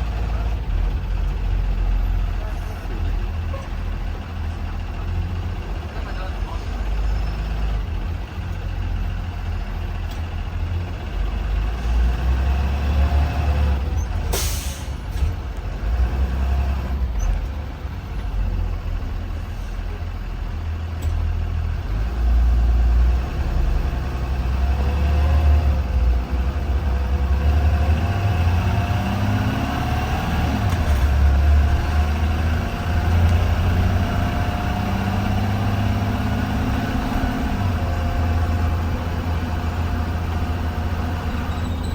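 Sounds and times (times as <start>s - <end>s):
bus engine rumble: 0.0s - 41.9s
air brake hiss: 14.3s - 15.2s.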